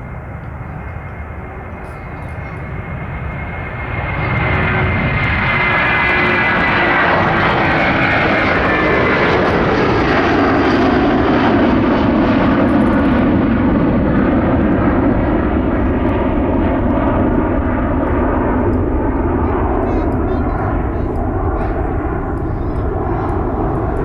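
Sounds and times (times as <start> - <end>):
jet airliner passing: 0.0 - 24.0.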